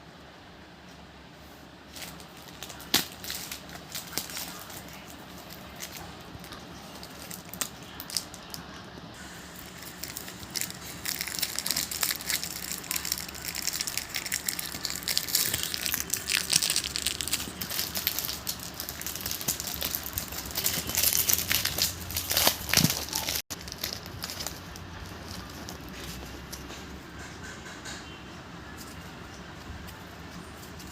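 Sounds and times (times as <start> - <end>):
packaging crinkling: 1.9 - 8.6, 9.6 - 26.7.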